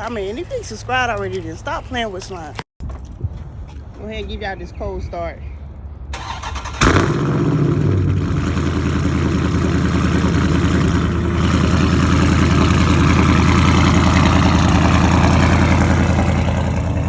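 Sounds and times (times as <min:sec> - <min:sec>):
car engine idling: 0:06.2 - 0:17.0.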